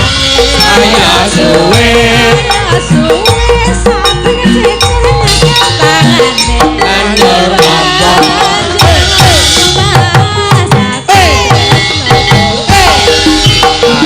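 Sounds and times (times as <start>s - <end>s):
metallophone tones: 0.0s - 9.8s.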